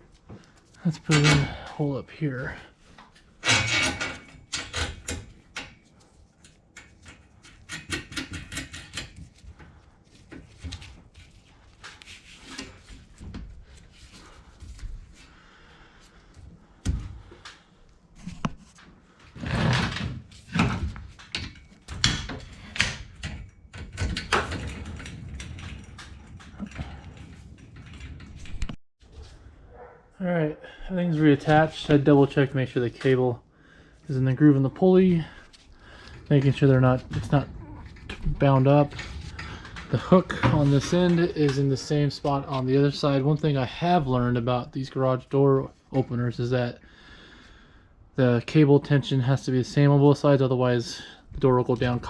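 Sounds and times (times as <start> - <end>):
metal hardware clinking and rattling: 0.9 - 1.8, 3.4 - 9.7, 19.9 - 28.7.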